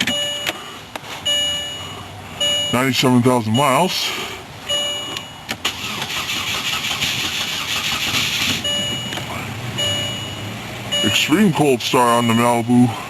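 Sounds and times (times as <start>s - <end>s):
dash warning chime: 0.0s - 5.5s, 8.6s - 13.0s
car engine idling: 0.0s - 13.0s.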